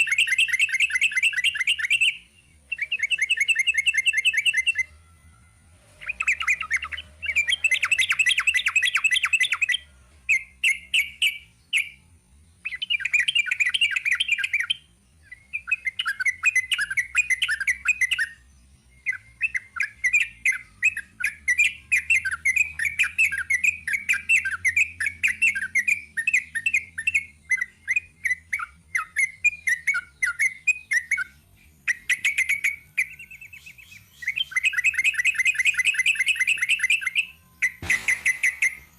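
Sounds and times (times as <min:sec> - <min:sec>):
bulbul singing fast chattering notes: 0:19.0 - 0:38.9.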